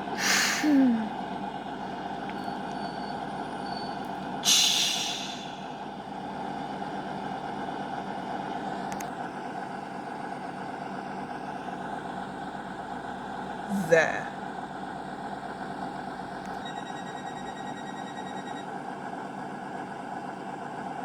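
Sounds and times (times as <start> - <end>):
diesel train engines running: 0.0 - 21.0
air brake hiss: 0.2 - 0.9, 4.4 - 5.8.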